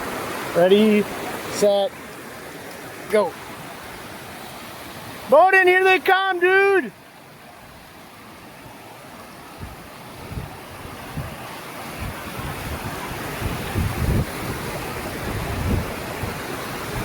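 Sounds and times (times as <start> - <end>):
waterfall rushing: 0.0 - 17.0
wind buffeting microphone: 9.5 - 17.0.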